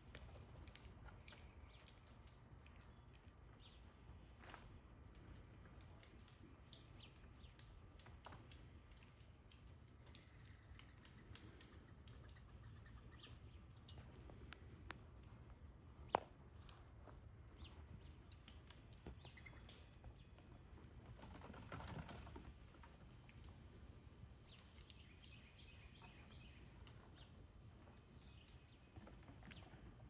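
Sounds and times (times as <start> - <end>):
birds chirping: 0.1 - 30.0
soft clicks: 13.8 - 16.8.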